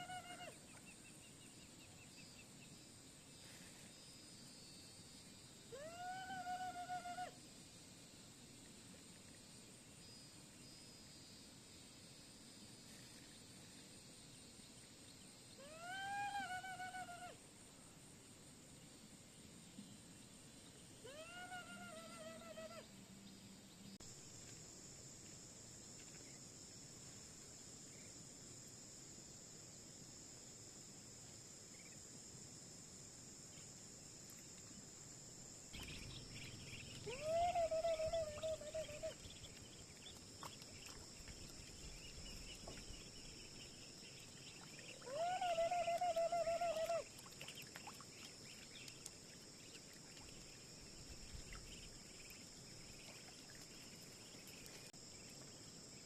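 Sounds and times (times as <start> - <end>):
insect chorus: 0.0 - 56.0.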